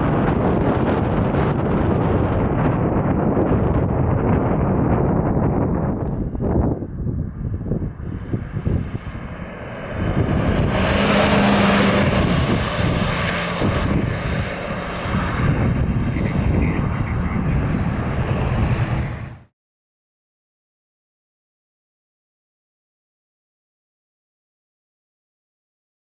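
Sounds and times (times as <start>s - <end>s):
wind buffeting microphone: 0.0s - 19.5s
fire truck driving past: 7.3s - 19.5s.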